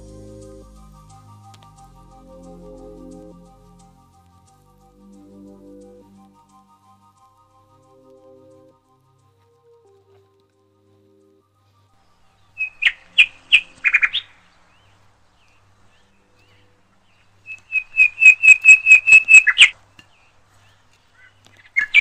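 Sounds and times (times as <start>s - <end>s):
bird chirping: 11.7s - 22.0s.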